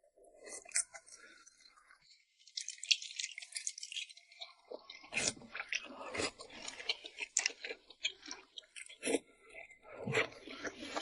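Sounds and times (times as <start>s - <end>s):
wet chewing smacks: 2.6s - 11.0s.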